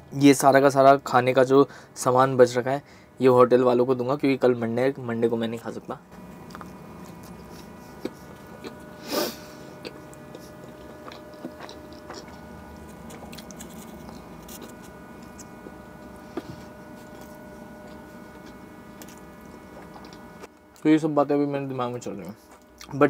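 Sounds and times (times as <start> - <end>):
faint steady hum: 0.0 - 23.0
person chewing and biting food: 6.2 - 20.8, 22.4 - 23.0.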